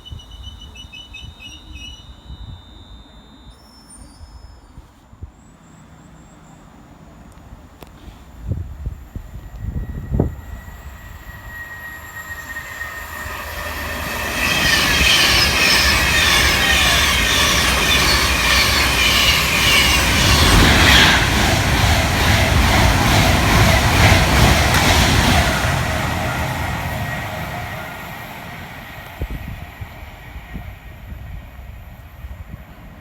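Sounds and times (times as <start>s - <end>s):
thin high tone: 0.1s - 4.8s
train passing at speed: 5.1s - 33.0s
wheels on rails: 7.2s - 30.5s.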